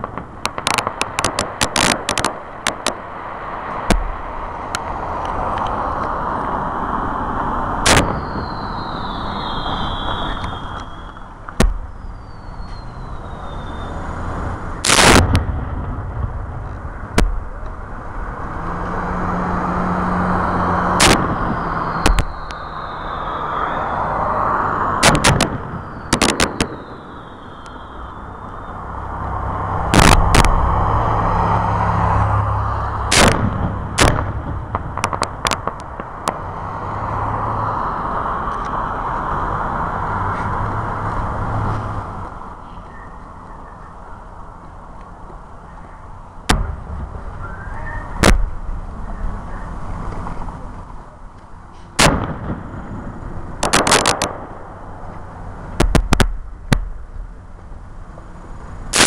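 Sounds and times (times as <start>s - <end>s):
fireworks booming: 0.0s - 5.2s, 7.4s - 31.6s, 32.7s - 37.9s, 46.4s - 49.5s, 52.0s - 57.4s
steady background noise: 0.0s - 59.0s
falling firework whistles: 5.6s - 15.6s, 18.5s - 29.2s, 32.6s - 38.9s, 46.5s - 48.6s, 51.8s - 54.6s.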